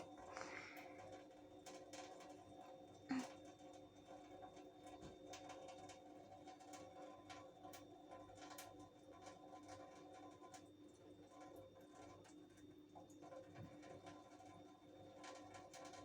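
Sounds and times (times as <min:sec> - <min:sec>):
faint steady hum: 0:00.0 - 0:12.1.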